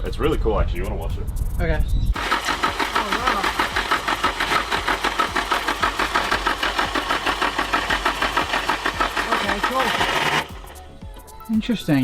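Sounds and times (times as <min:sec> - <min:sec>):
engine cranking on starter motor: 0:02.2 - 0:11.1.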